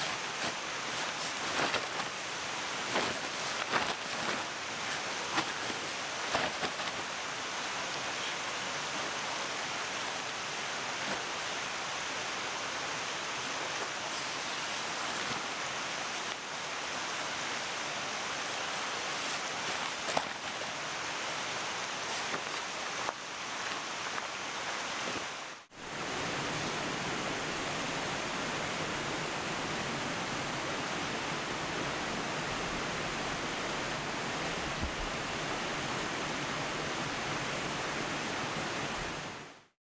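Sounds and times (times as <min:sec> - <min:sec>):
mountain stream rushing: 0:00.0 - 0:39.5.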